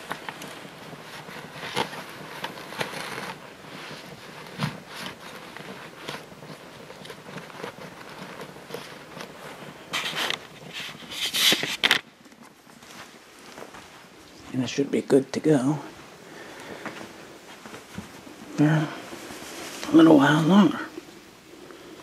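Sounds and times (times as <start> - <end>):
vacuum dust bag crinkling: 0.0 - 14.5, 15.9 - 21.2.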